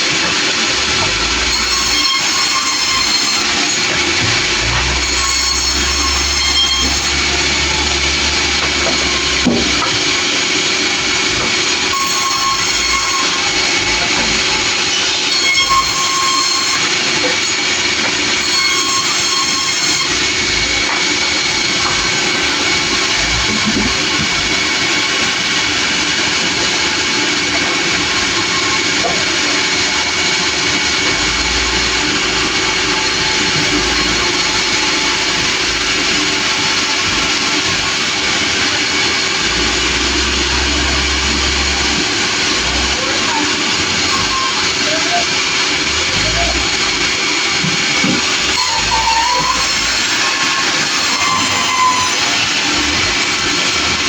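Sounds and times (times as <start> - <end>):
sawmill cutting wood: 0.0 - 54.0
high squeal-like tone: 1.5 - 10.0, 11.9 - 14.0, 14.9 - 17.5, 18.4 - 20.3, 48.5 - 52.9.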